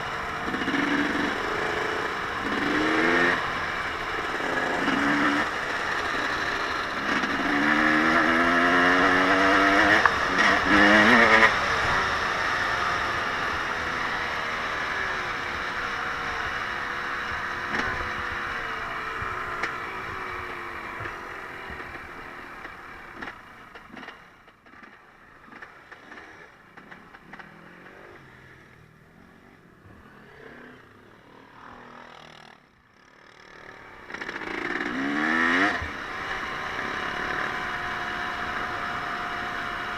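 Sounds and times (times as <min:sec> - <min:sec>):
off-road vehicle engine revving: 0:00.0 - 0:22.1, 0:33.3 - 0:39.9.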